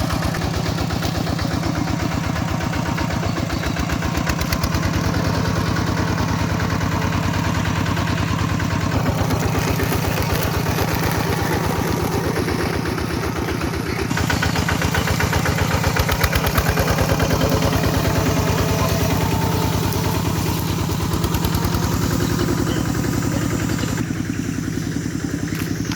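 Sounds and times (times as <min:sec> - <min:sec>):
tractor diesel engine running: 0:00.0 - 0:25.9.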